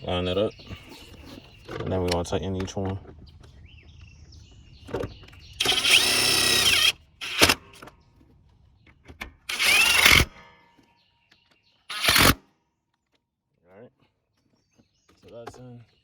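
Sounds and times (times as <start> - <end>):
power tool motor whine: 5.6 - 7.8, 9.5 - 10.4, 11.9 - 12.4.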